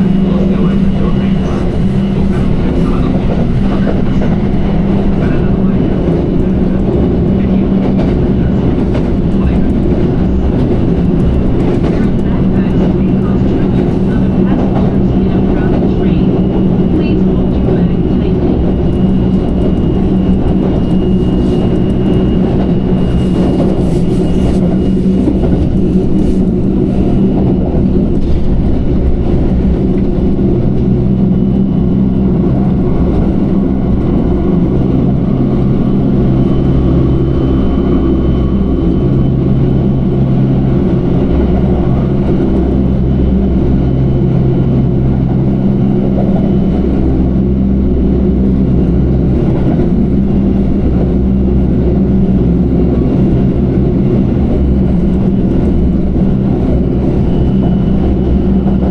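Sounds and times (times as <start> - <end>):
train rumbling along: 0.0 - 58.9.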